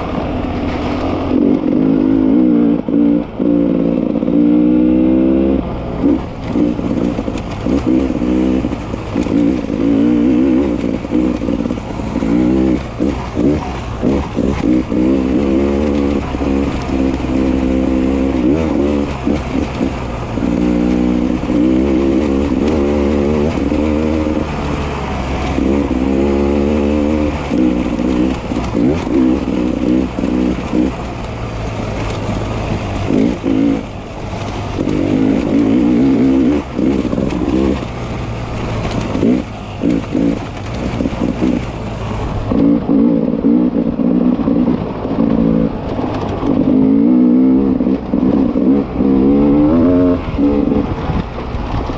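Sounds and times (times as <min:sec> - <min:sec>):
dirt bike engine revving: 0:00.0 - 0:51.2.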